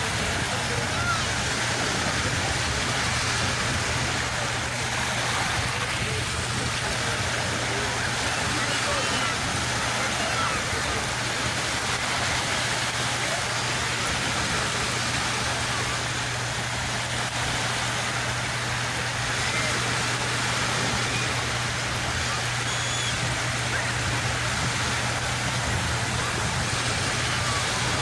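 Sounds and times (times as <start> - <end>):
sea surf washing ashore: 0.0 - 28.0.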